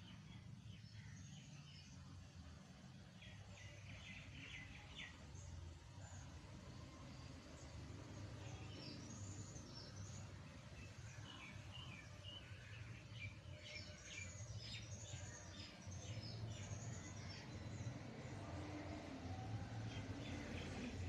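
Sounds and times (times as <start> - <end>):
birds chirping: 8.0 - 18.4.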